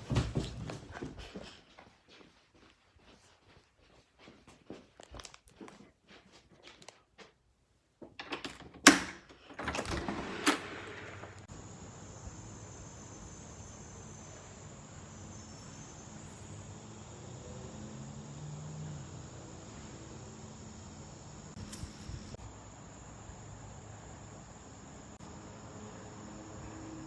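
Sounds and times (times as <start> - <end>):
footsteps on hard floor: 0.0 - 7.4
door clunking open and shut: 8.1 - 11.5
steady outdoor hiss: 9.9 - 27.0.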